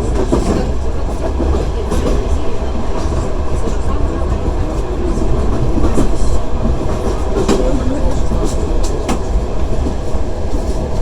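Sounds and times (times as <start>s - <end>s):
train wheels rumbling on rails: 0.0s - 11.0s
wheels clacking over rail joints: 0.0s - 11.0s.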